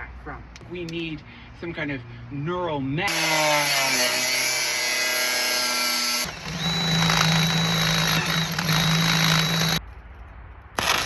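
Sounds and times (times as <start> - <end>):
power tool motor running: 3.1 - 9.8, 10.8 - 11.0.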